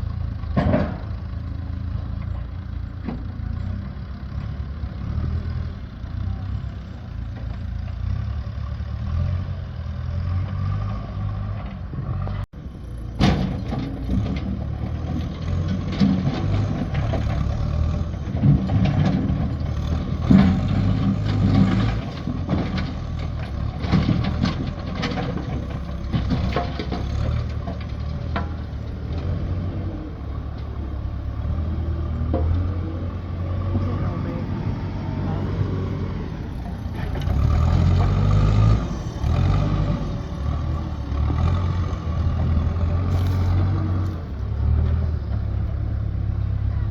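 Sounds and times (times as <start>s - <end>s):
engine running: 0.0s - 46.9s
knocks and clatter: 0.5s - 1.2s, 13.1s - 32.8s.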